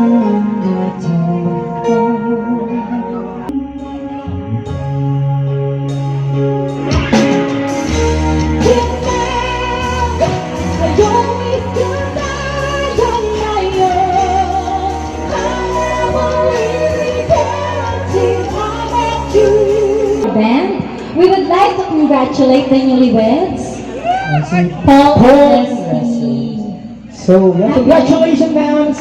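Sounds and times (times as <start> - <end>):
person singing long notes: 0.0 - 6.2
live band playing: 0.0 - 29.0.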